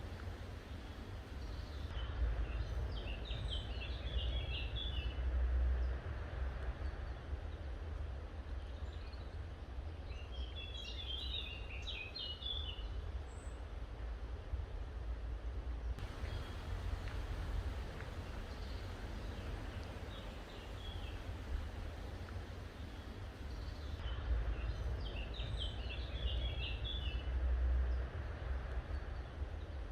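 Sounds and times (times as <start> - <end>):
songbirds chirping: 0.0 - 5.2, 8.5 - 13.6, 16.0 - 27.3
steady low rumble: 13.7 - 29.9.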